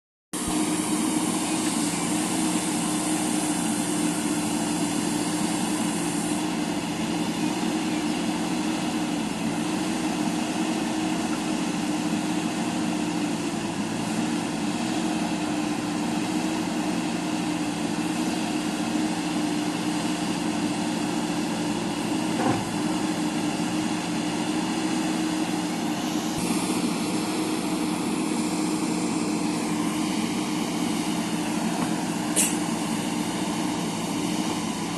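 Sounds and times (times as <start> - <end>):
diesel engine running: 0.4 - 34.9
brief knock: 22.4 - 22.7.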